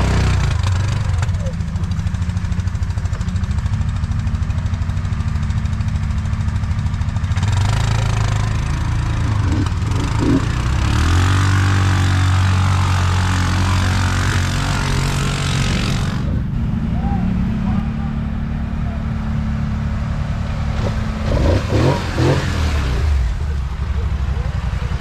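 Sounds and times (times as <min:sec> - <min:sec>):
louder engine revving: 0:00.0 - 0:01.3, 0:07.0 - 0:23.9
atv engine idling: 0:00.0 - 0:25.0.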